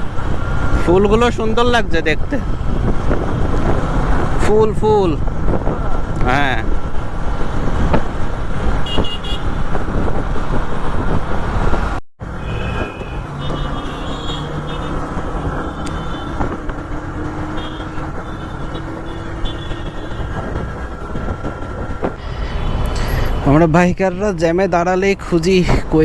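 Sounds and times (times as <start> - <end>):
traffic engines running: 0.0 - 26.0
car horns honking: 8.8 - 9.6, 12.3 - 22.9.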